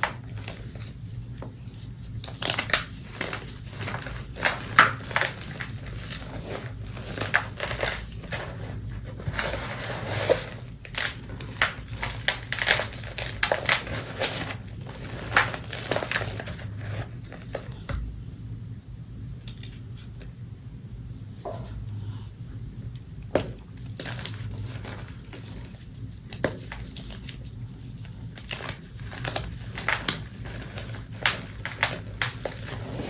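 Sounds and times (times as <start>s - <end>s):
chalk crushed by hand: 0.0s - 16.7s.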